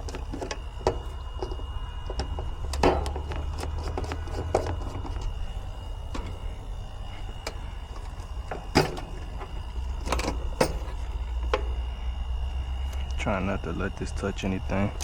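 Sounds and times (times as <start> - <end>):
hand tools clicking and knocking: 0.0 - 5.3
steady low rumble: 0.0 - 15.0.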